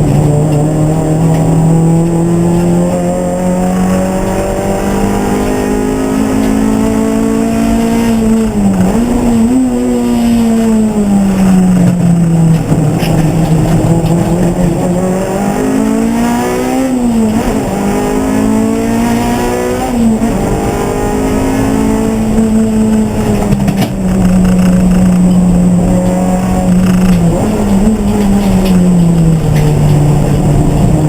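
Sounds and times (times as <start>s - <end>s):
race car engine running hard: 0.0s - 31.0s.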